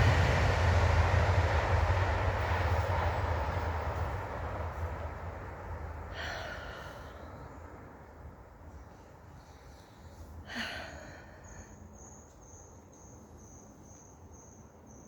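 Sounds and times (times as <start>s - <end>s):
cricket chirping: 10.8s - 15.0s.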